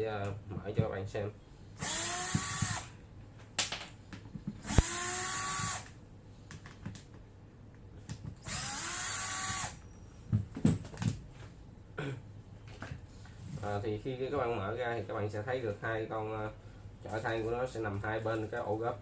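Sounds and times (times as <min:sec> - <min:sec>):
cordless screwdriver whining: 0:01.8 - 0:02.9, 0:04.6 - 0:05.9, 0:08.4 - 0:09.8.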